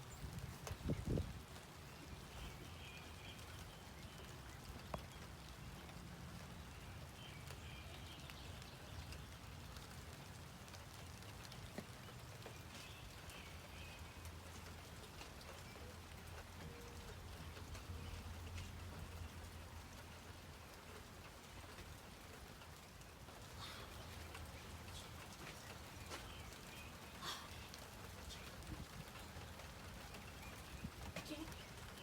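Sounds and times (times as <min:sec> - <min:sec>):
light rain falling: 0:00.0 - 0:32.0
raindrops ticking: 0:00.0 - 0:32.0.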